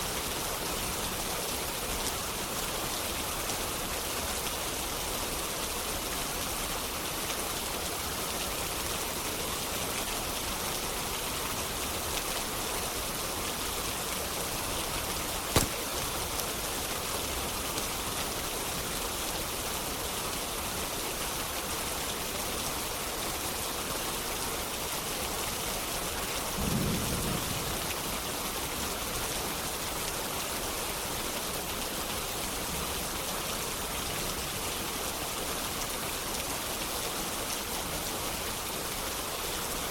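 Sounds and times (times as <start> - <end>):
steady rain hiss: 0.0 - 39.9
sharp snap: 15.5 - 16.0.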